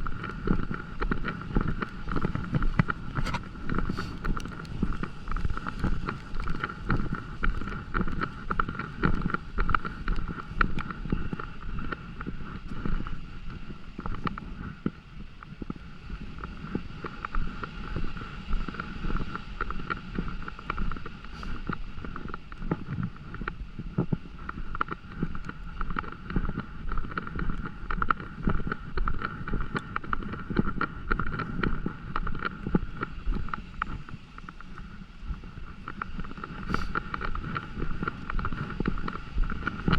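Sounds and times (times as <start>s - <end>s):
steady high hum: 0.0s - 39.9s
wind rumble on microphone: 0.0s - 39.9s
rain patter: 0.1s - 10.5s.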